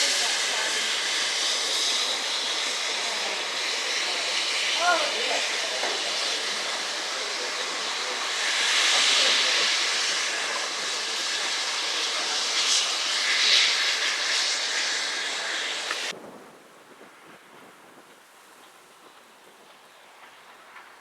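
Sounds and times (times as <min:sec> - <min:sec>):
steam hissing: 0:00.0 - 0:16.2
steam locomotive passing: 0:00.0 - 0:21.0.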